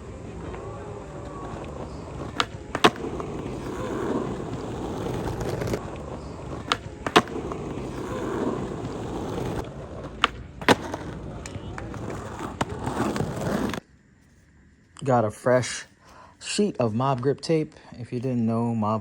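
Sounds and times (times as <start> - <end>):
skateboard clacks: 0.0 - 13.8
skateboard wheels rolling on concrete: 0.0 - 19.0.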